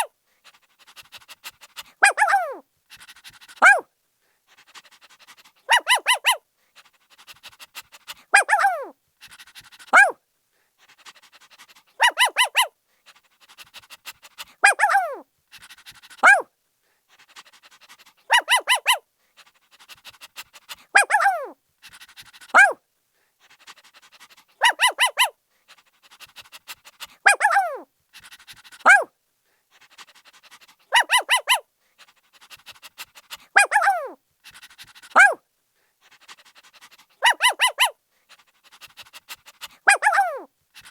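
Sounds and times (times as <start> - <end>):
puppy barking in high yips: 2.0 - 2.6, 3.6 - 3.8, 5.7 - 6.4, 8.3 - 8.9, 9.9 - 10.2, 12.0 - 12.7, 14.6 - 15.2, 16.2 - 16.5, 18.3 - 19.0, 21.0 - 21.6, 22.5 - 22.8, 24.6 - 25.3, 27.2 - 27.8, 28.8 - 29.1, 30.9 - 31.6, 33.6 - 34.2, 35.2 - 35.4, 37.2 - 38.0, 39.9 - 40.5.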